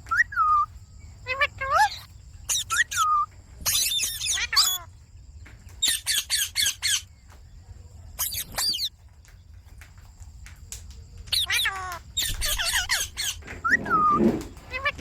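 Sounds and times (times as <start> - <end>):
parakeet squawking: 1.2 - 4.9, 5.8 - 7.0, 8.2 - 8.9, 11.3 - 15.0.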